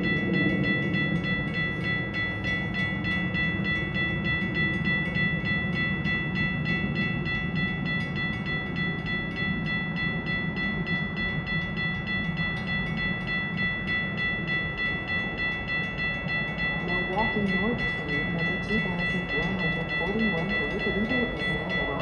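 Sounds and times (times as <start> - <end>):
low rumble: 0.0 - 22.0
railroad crossing bell ringing: 0.0 - 22.0.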